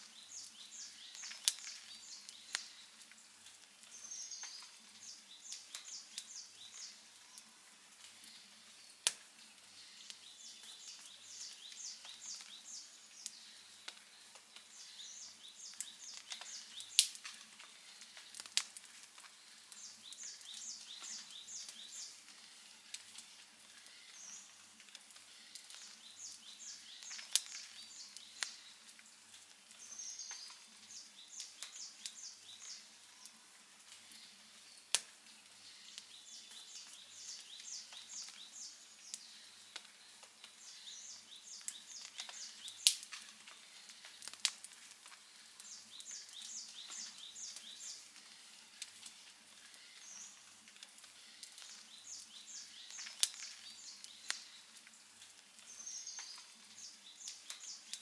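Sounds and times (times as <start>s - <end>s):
wood fire crackling: 0.0s - 58.0s
sharp pops of fire: 1.1s - 2.7s, 15.7s - 21.9s, 24.9s - 28.6s, 41.6s - 47.8s.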